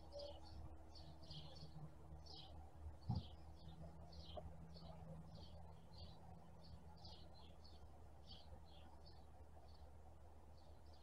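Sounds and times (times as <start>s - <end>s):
small bird chirping: 0.0s - 9.9s
low thump: 3.1s - 3.3s.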